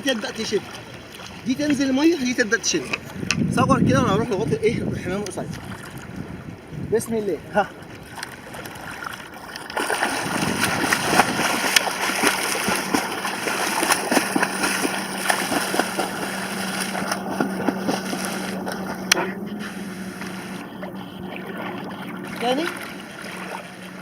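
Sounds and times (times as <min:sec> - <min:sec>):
steady low hum: 0:07.6 - 0:24.0
swimmer splashing in water: 0:07.7 - 0:24.0.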